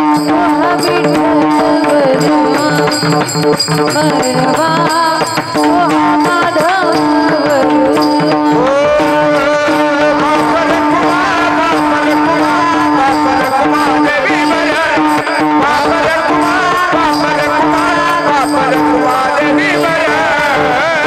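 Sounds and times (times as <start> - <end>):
woman singing: 0.0 - 13.4.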